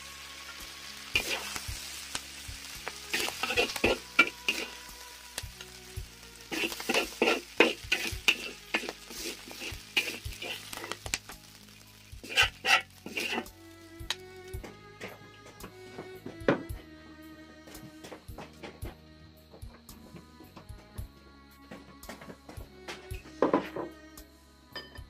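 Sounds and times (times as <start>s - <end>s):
food sizzling in a wok: 0.0s - 16.8s, 22.5s - 25.0s
spatula scraping a pan: 1.1s - 1.7s, 3.1s - 5.0s, 6.5s - 11.1s, 12.2s - 13.5s.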